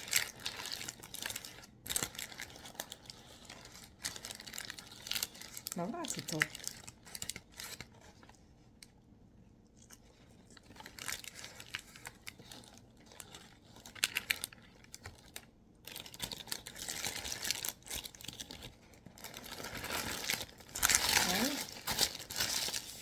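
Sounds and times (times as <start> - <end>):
food packaging crinkling: 0.0 - 8.4, 9.8 - 23.0
small clicks and crackles: 0.0 - 9.0, 9.6 - 23.0.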